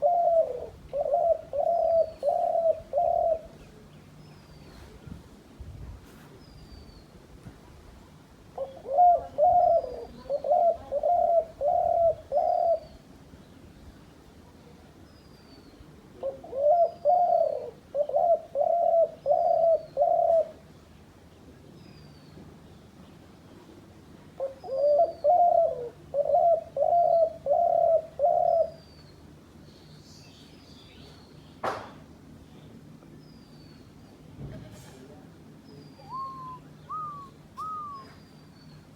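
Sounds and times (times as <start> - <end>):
dove cooing: 0.0 - 3.6, 8.6 - 13.0, 16.2 - 20.6, 24.4 - 28.8, 36.0 - 38.2
faint high bird chirp: 28.7 - 31.7, 35.6 - 38.9.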